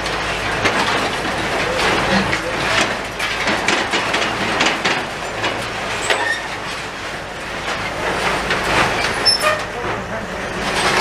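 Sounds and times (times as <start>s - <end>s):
demolition machinery rumbling: 0.0s - 11.0s
metallic clanks and knocks: 0.5s - 6.8s.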